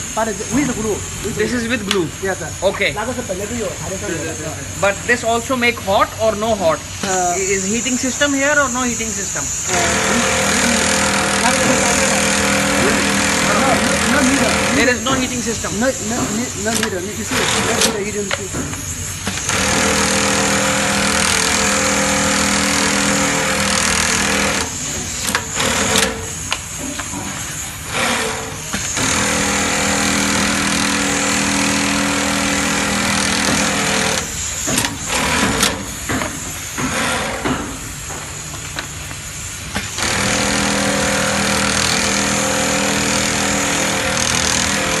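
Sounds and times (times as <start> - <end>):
machine humming: 0.0 - 45.0.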